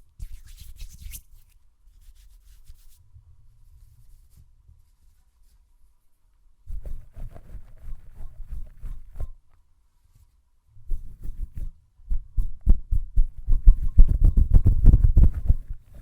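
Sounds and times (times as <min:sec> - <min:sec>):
hands rubbing together: 0:00.2 - 0:03.0.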